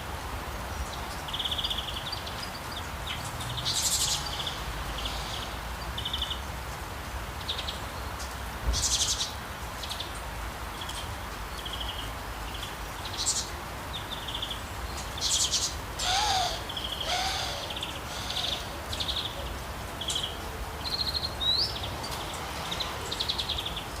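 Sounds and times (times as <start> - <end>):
birds chirping and trilling: 0.8 - 6.4, 10.8 - 24.0
low falling bird calls: 13.0 - 22.2.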